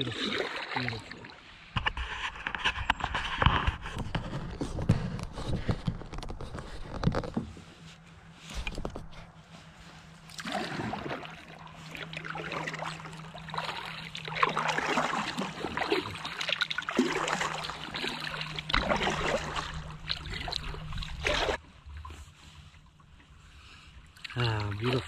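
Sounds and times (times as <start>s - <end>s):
paddle strokes splashing in water: 0.0s - 4.2s, 9.9s - 25.0s
water trickling off paddle blades: 8.6s - 25.0s.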